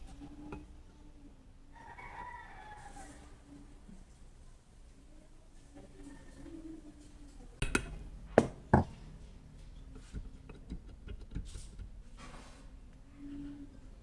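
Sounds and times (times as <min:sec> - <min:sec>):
sharp knocks: 0:08.4 - 0:08.9.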